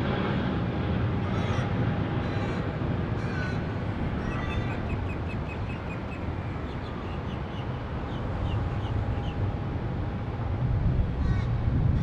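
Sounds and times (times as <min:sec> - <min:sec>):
steady low rumble: 0:00.0 - 0:06.9.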